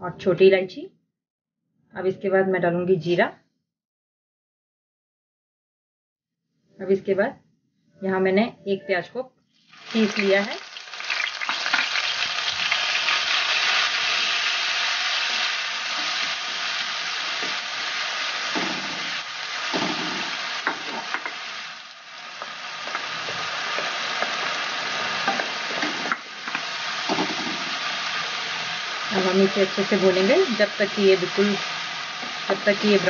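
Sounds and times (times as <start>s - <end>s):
onion paste sizzling in oil: 9.6s - 33.0s.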